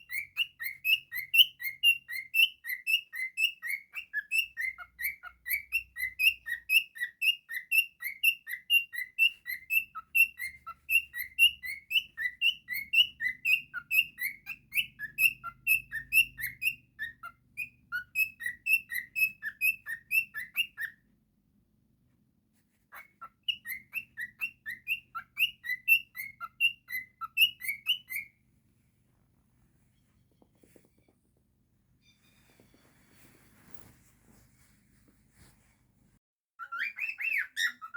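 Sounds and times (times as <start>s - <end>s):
cockatiel chirping: 0.0s - 21.1s, 22.8s - 28.4s, 36.6s - 37.9s.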